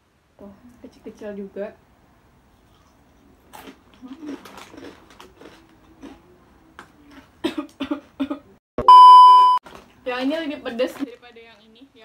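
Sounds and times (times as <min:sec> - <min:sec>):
crunching and chewing crispy snack: 0:02.6 - 0:07.4.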